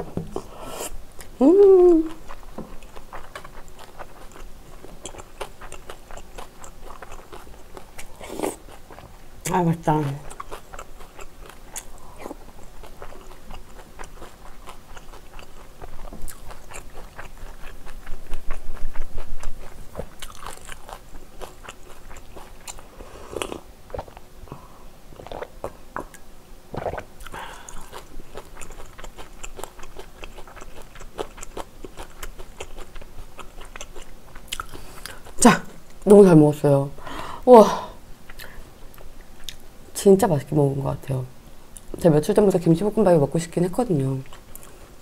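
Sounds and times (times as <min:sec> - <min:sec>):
person chewing: 0:00.3 - 0:09.2, 0:10.0 - 0:24.3, 0:25.2 - 0:35.5, 0:38.3 - 0:39.6, 0:44.2 - 0:45.0
person swallowing: 0:25.3 - 0:27.7.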